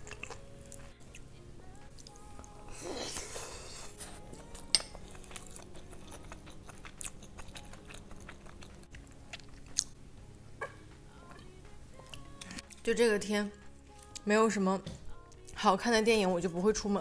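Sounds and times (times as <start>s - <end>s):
wet chewing and lip smacks: 5.0s - 10.0s.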